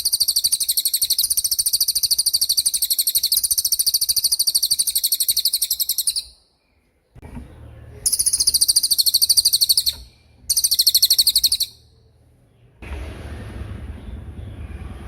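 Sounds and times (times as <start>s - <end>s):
songbird high rapid trills: 0.0s - 6.4s, 8.0s - 11.8s
low hum: 11.8s - 15.0s.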